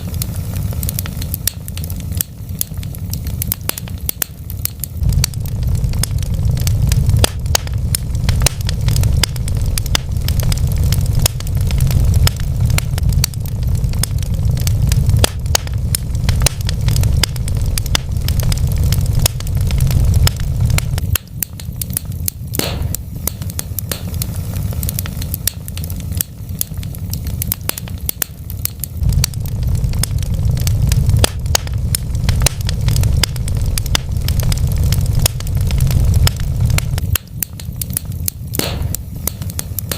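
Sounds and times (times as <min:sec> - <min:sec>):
fire low roar: 0:00.0 - 0:39.9
wood fire crackling and popping: 0:00.0 - 0:39.9.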